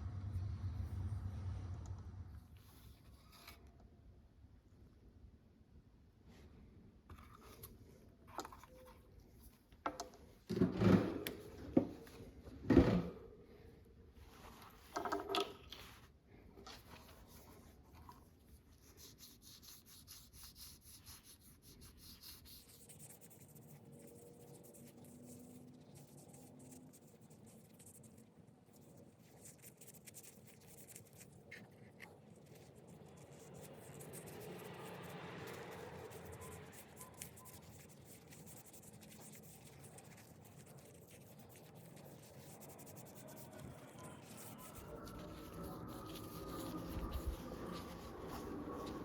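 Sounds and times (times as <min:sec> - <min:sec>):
light scratching and rubbing: 0:16.7 - 0:49.0.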